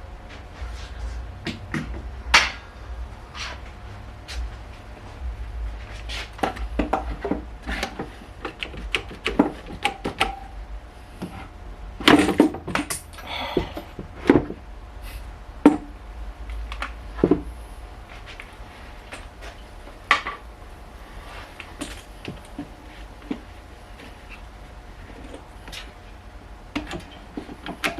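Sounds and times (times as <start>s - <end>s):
faint low hum: 0.0s - 9.0s.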